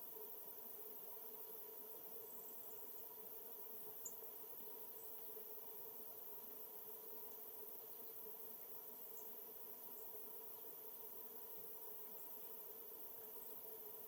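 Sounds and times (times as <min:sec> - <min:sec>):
low hum and hiss: 0:00.0 - 0:14.0
faint high bird chirps: 0:04.0 - 0:05.1.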